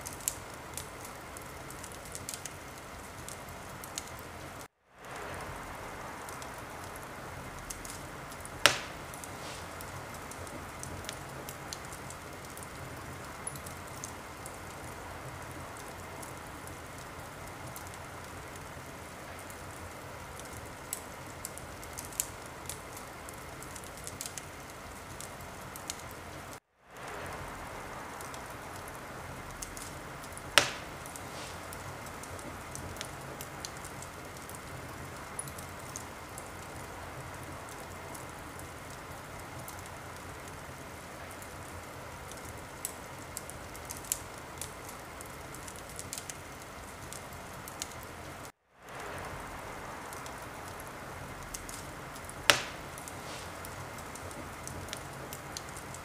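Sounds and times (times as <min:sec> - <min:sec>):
wood fire crackling and hissing: 0:00.0 - 0:56.0
loud pop from fire: 0:07.7 - 0:11.9, 0:29.5 - 0:33.2, 0:52.5 - 0:55.0.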